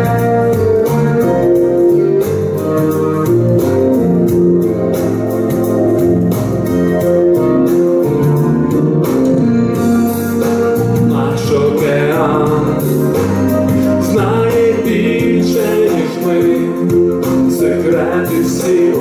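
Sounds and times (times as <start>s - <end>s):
keyboard chords: 0.0s - 19.0s
steady drum beat: 0.0s - 19.0s.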